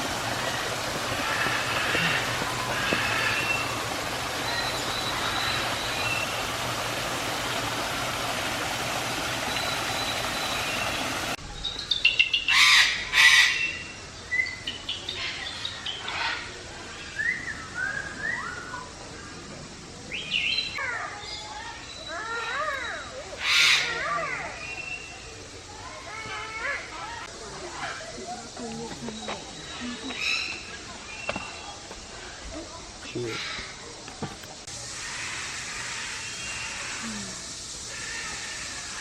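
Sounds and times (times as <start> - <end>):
steady rushing noise: 0.0 - 11.4.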